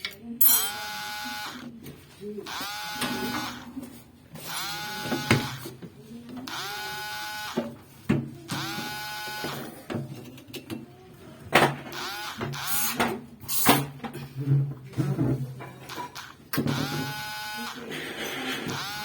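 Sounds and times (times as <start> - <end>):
small electric motor whining: 0.8 - 1.6, 2.5 - 3.7, 6.5 - 7.6, 8.6 - 9.7, 11.9 - 13.0, 15.9 - 17.8, 18.7 - 19.0.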